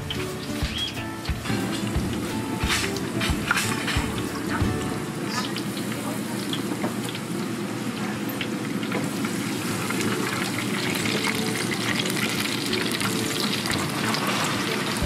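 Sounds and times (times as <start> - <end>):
oil sizzling and crackling: 0.0 - 15.0.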